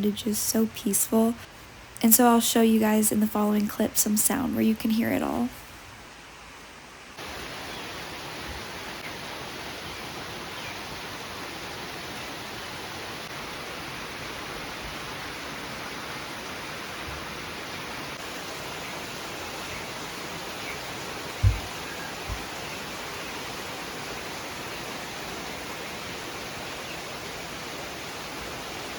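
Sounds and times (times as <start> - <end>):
steady rain: 0.1 - 4.3, 5.4 - 28.9
short low thump: 21.4 - 22.5.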